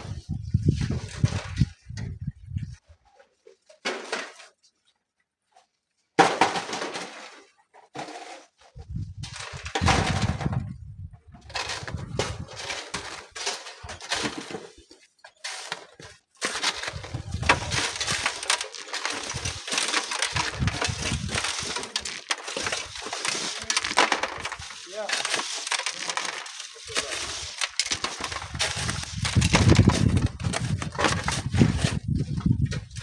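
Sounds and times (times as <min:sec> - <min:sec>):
wind buffeting microphone: 0:00.0 - 0:02.8, 0:08.8 - 0:12.6, 0:16.9 - 0:17.9, 0:20.3 - 0:21.4, 0:28.3 - 0:33.0
sand and gravel crunching: 0:13.9 - 0:33.0.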